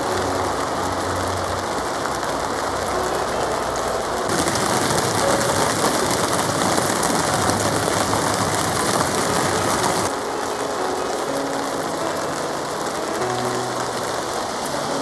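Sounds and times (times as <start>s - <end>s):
heavy rain pounding on a tarp: 0.0s - 15.0s.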